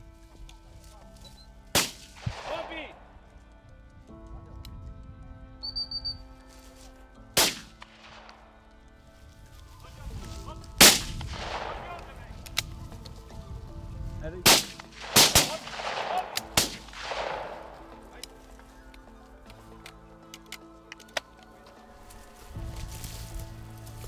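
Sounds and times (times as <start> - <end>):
shotgun shots with echo: 1.8 - 3.0, 7.4 - 8.4, 10.8 - 12.3, 14.5 - 18.1.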